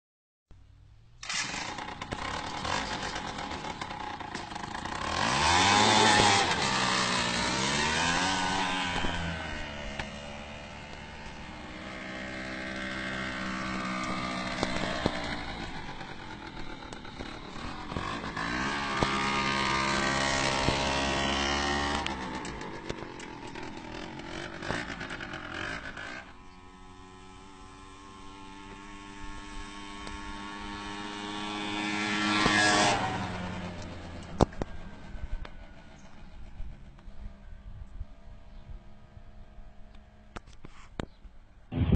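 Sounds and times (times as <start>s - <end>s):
small engine revving: 1.2s - 41.1s.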